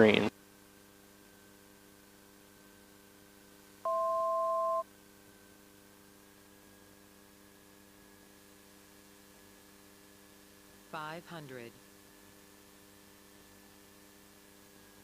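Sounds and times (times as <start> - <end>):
faint steady hum: 0.0 - 15.0
electronic beep: 3.9 - 4.8.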